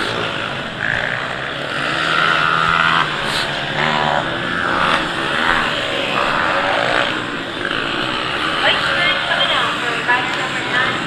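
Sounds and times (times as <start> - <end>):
motocross bike engines revving: 0.0 - 11.0.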